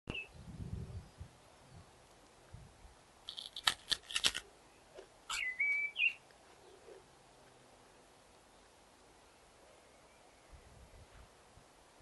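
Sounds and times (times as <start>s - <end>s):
songbird singing: 0.1s - 2.3s, 4.4s - 11.2s.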